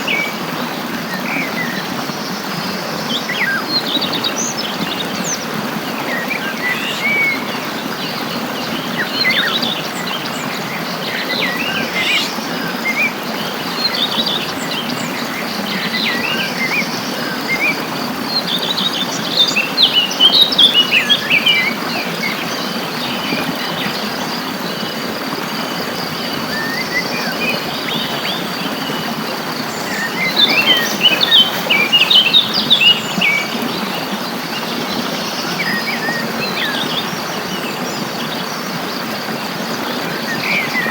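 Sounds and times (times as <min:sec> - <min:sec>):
birds chirping and singing: 0:03.1 - 0:16.9, 0:26.0 - 0:37.9.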